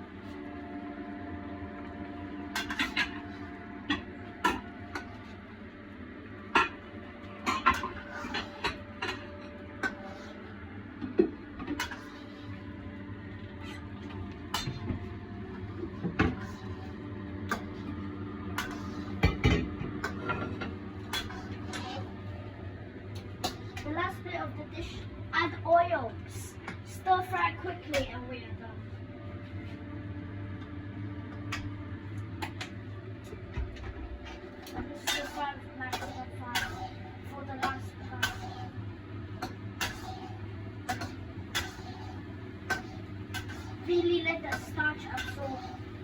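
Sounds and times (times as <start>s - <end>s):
steady hum: 0.0s - 46.0s
dishes and utensils clinking: 35.0s - 37.0s, 39.4s - 42.1s, 42.7s - 45.8s.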